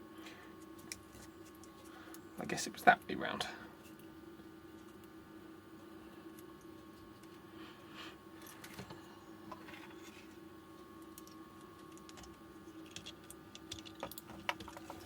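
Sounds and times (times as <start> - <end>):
steady low hum: 0.0 - 15.0
small clicks and rustles of parts: 0.2 - 2.2, 6.3 - 7.4, 8.4 - 15.0.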